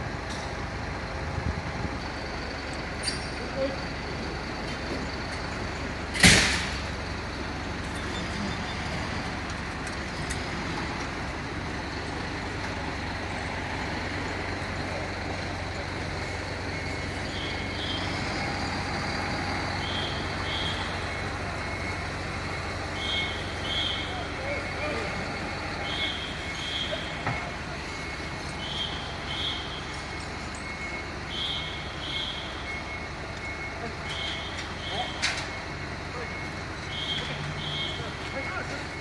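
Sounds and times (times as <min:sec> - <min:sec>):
diesel truck idling: 0:00.0 - 0:39.0.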